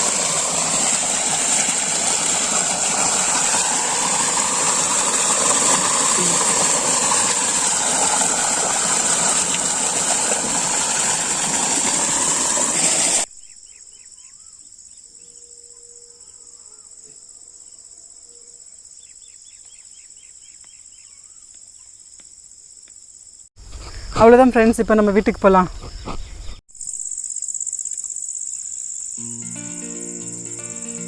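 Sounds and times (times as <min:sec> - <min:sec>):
loud rushing noise: 0:00.0 - 0:13.2
crickets chorus: 0:13.2 - 0:31.0.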